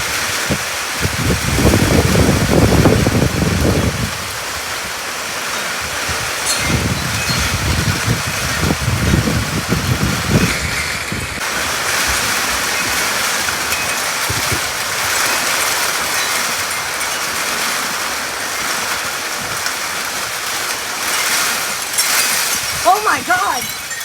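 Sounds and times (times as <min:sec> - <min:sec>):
heavy rain pouring: 0:00.0 - 0:24.0
gusty low rumbles: 0:06.5 - 0:11.4.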